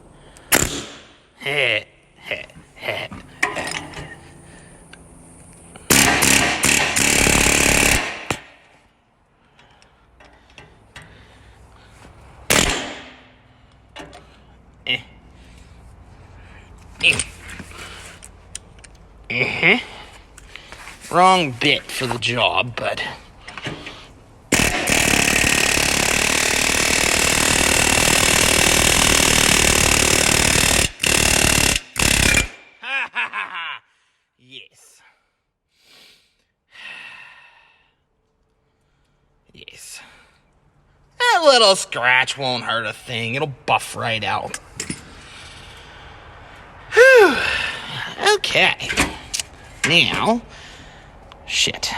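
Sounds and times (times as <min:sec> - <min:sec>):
power tool running: 0:05.8 - 0:08.4, 0:24.5 - 0:32.5.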